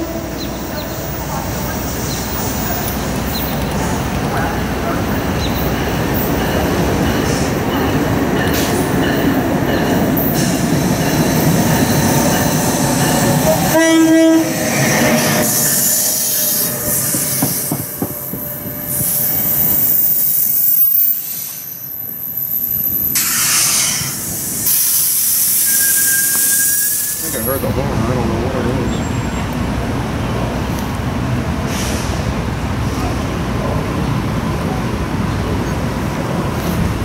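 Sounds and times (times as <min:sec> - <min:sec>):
train rolling past: 0:00.0 - 0:37.0
train horn blast: 0:13.4 - 0:15.6
thin wheel squeal: 0:25.4 - 0:27.4.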